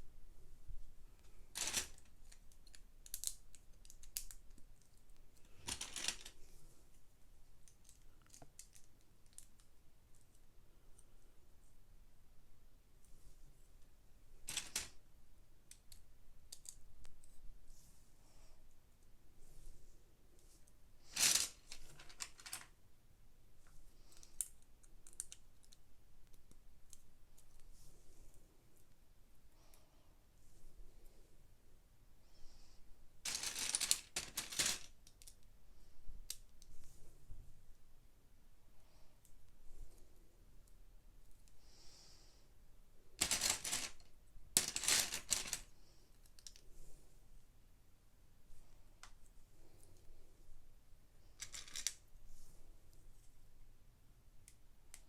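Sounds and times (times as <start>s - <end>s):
plastic pieces rattling and rustling: 1.5s - 6.4s, 14.4s - 15.0s, 21.0s - 22.7s, 33.3s - 35.4s, 43.2s - 45.7s, 51.4s - 52.0s
plastic bricks clattering: 1.6s - 2.0s, 5.6s - 6.4s, 21.2s - 22.7s, 33.3s - 34.9s, 43.2s - 45.7s.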